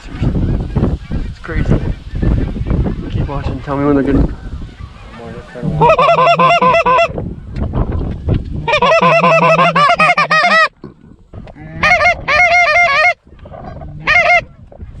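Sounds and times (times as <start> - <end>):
goose call honks and clucks: 5.0 - 7.2, 8.6 - 15.0.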